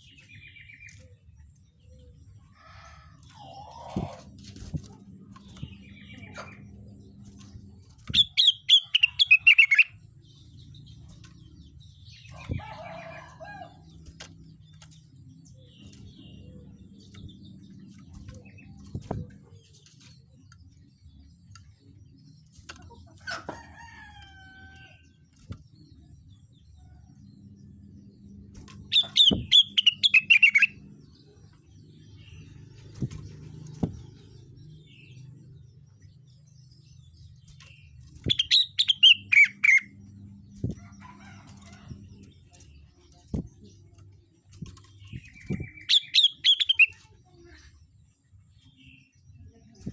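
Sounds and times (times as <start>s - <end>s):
soft bird calls: 0.0s - 10.5s, 37.6s - 49.9s
songbird rapid high chattering: 38.2s - 39.9s, 45.2s - 47.1s.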